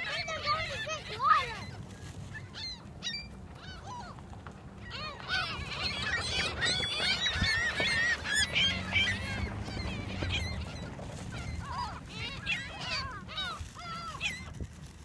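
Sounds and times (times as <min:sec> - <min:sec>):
gulls calling: 0:00.0 - 0:15.0
low steady rumble: 0:00.0 - 0:15.0.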